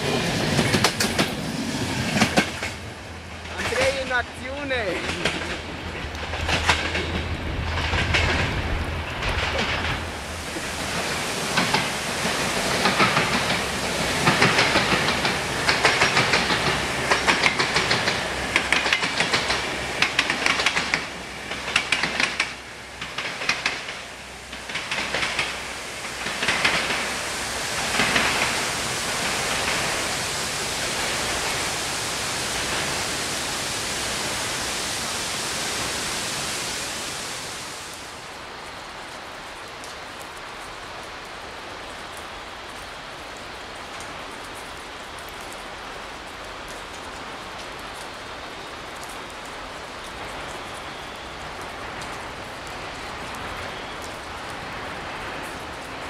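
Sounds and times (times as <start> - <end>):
train wheels clattering: 0.0 - 4.2, 4.8 - 31.8
rain hissing: 0.0 - 56.0.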